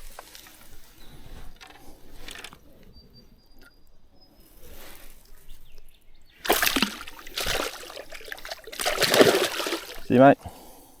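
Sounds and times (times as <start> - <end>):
river water splashing: 6.4 - 10.3.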